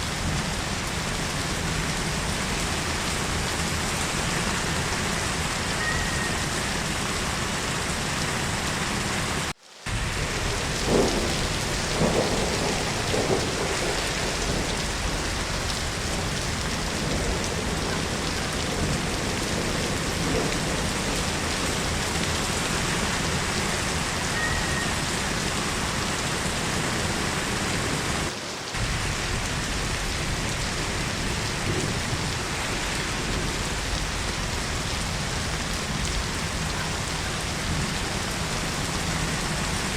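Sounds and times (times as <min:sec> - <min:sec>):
heavy rainfall: 0:00.0 - 0:39.9
thunder cracks: 0:09.9 - 0:25.4, 0:28.8 - 0:36.6.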